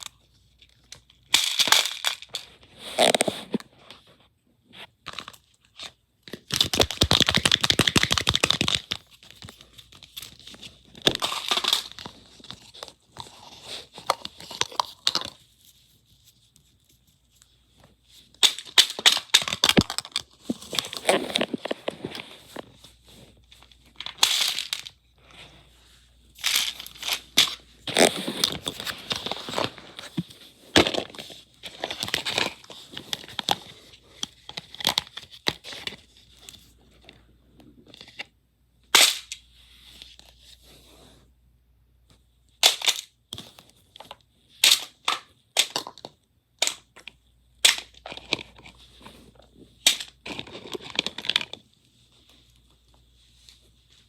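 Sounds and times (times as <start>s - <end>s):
plastic shells clicking: 6.3s - 9.5s.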